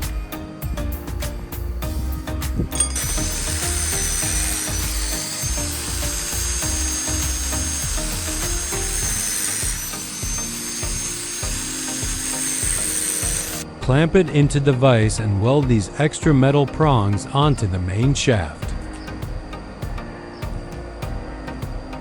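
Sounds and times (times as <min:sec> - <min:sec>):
background music with a beat: 0:00.0 - 0:22.0
power tool whine on steel: 0:01.8 - 0:14.7.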